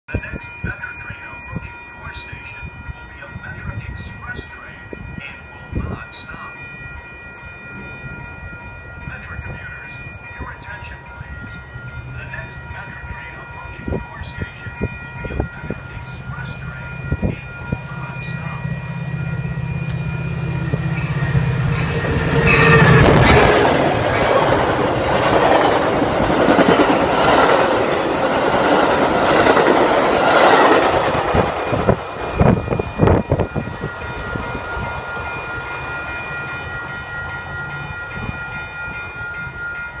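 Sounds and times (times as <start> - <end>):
train engine drone: 0.2 - 40.0
train rushing and rail clatter: 0.2 - 40.0.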